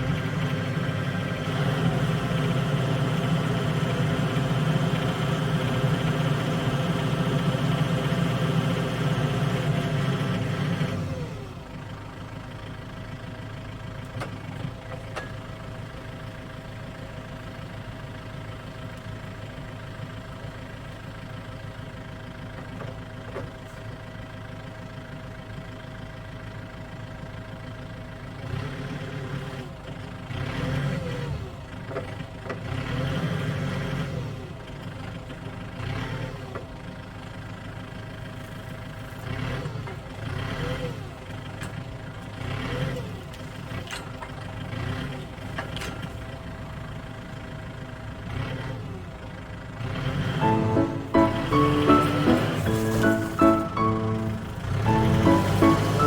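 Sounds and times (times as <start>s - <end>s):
forklift diesel engine running: 0.0s - 28.0s, 50.4s - 56.0s.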